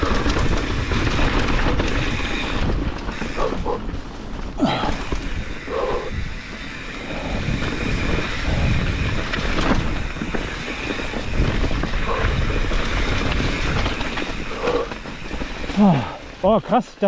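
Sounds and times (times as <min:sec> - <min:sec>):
wind buffeting microphone: 0:00.0 - 0:16.8
bike rattling: 0:00.0 - 0:17.0
bike tyres rolling on rocks: 0:00.0 - 0:17.0.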